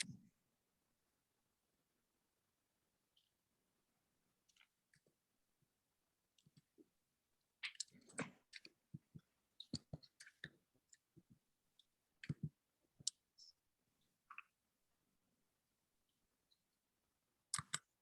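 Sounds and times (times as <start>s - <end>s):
clicks and light taps: 17.5s - 18.0s.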